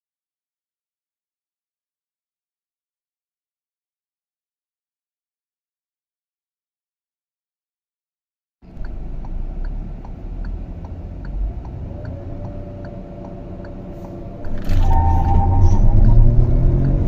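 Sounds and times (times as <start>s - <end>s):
car engine revving: 8.6s - 17.0s
light engine ticking: 8.7s - 14.5s.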